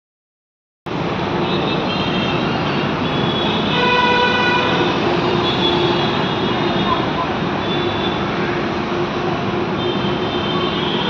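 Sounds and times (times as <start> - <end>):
road traffic noise: 0.9 - 11.0
vehicle horn: 3.1 - 7.0.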